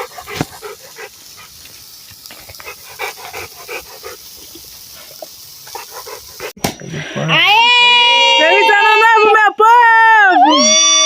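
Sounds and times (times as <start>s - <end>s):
dog panting: 0.0s - 6.6s.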